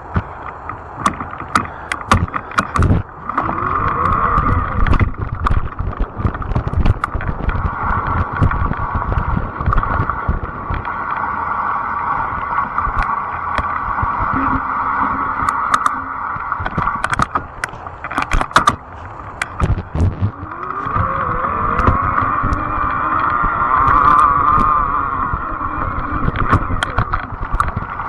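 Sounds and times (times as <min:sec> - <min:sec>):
electric bike motor hum: 0:00.0 - 0:28.0
wind rumble on microphone: 0:00.0 - 0:28.0
clicks and rattles: 0:00.1 - 0:11.0, 0:15.4 - 0:24.8, 0:25.8 - 0:28.0
rising motor whine: 0:19.4 - 0:28.0.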